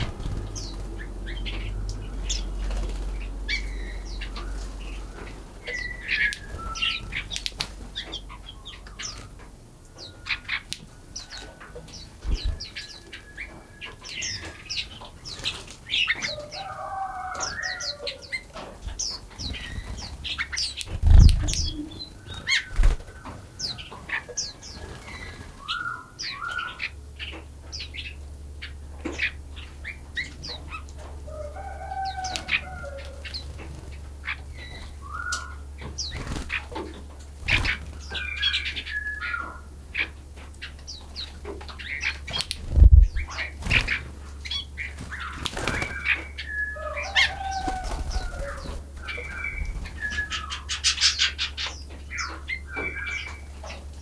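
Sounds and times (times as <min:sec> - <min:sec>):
songbirds chirping and singing: 0:00.0 - 0:54.0
low hum: 0:20.8 - 0:22.2, 0:42.6 - 0:43.4.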